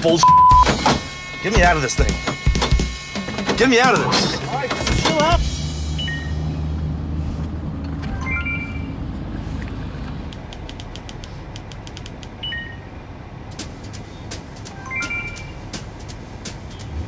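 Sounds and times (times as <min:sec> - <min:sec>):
high beeps: 0:00.2 - 0:00.7, 0:06.0 - 0:06.4, 0:08.1 - 0:09.0, 0:12.4 - 0:12.8, 0:14.8 - 0:15.6
sharp irregular clicks: 0:10.3 - 0:12.4.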